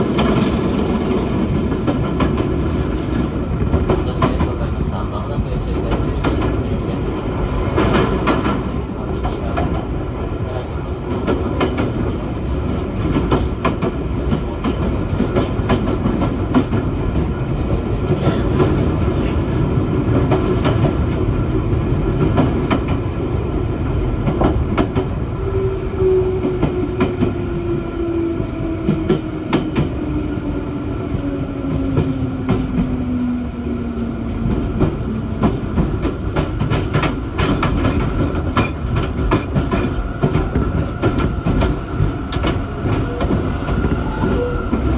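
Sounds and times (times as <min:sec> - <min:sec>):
rail joint clicks: 0:00.0 - 0:09.9, 0:10.5 - 0:21.4, 0:31.0 - 0:33.0, 0:33.6 - 0:44.9
train drive whine: 0:00.0 - 0:44.9
train wheels rumbling on rail: 0:00.0 - 0:44.9.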